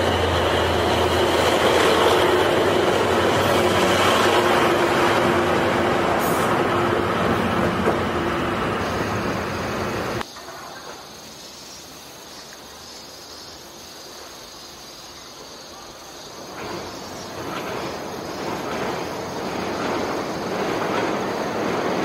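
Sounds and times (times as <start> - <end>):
train running noise: 0.0 - 22.0
wheels clattering over rail joints: 16.4 - 22.0.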